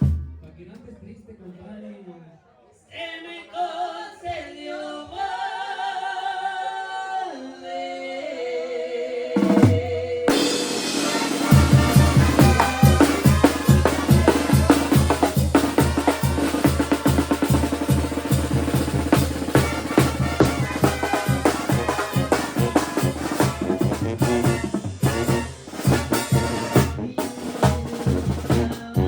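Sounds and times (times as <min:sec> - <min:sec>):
banda music with drums: 0:00.0 - 0:00.7, 0:09.4 - 0:29.0.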